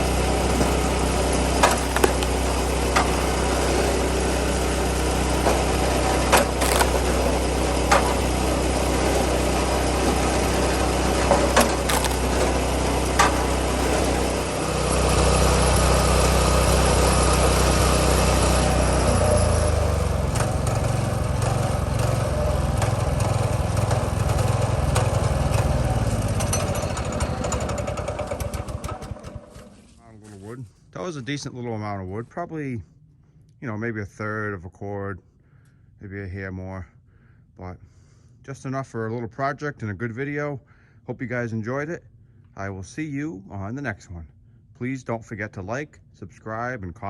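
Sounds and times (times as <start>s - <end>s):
small gasoline engine running: 0.0s - 30.0s
sharp cracks: 0.6s - 3.2s, 6.3s - 8.3s, 11.6s - 12.6s.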